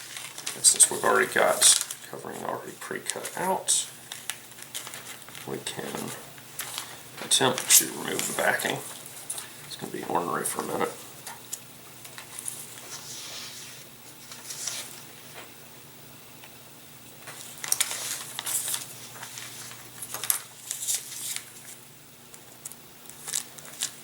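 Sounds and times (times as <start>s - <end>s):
plastic film crinkling: 0.0s - 9.8s, 17.2s - 21.8s, 22.6s - 24.0s.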